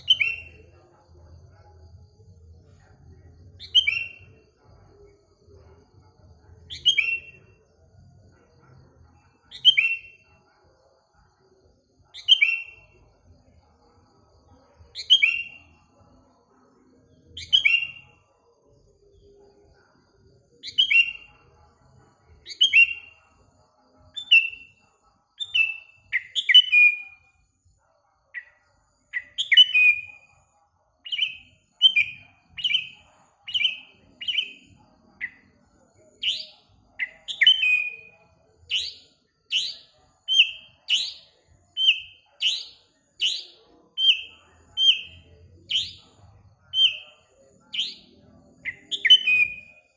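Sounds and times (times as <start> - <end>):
bulbul chirping: 0.0 - 0.7, 3.6 - 4.2, 6.7 - 7.4, 36.2 - 46.1, 46.8 - 47.2, 47.8 - 49.7.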